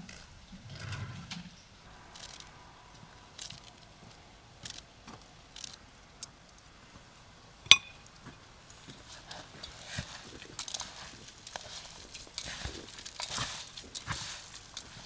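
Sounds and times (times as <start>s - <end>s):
utensil clinking on a bowl: 7.7s - 8.0s, 9.2s - 15.0s
food squishing and rustling: 8.7s - 15.0s.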